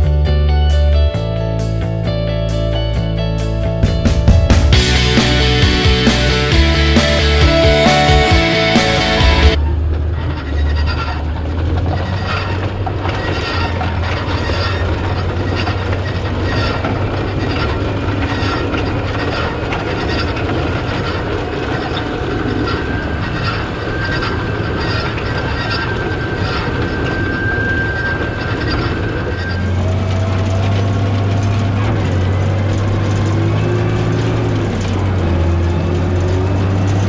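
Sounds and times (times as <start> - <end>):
tractor diesel engine drone: 0.0 - 10.4, 11.1 - 37.0.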